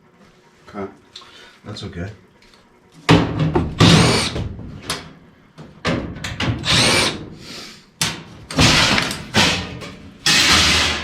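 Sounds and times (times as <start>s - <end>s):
cordless drill bursts: 3.8s - 4.4s, 6.6s - 7.2s.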